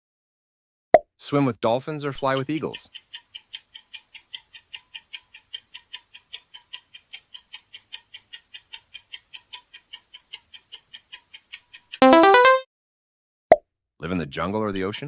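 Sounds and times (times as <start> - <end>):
clock-like ticking: 2.2 - 12.6, 14.8 - 15.0.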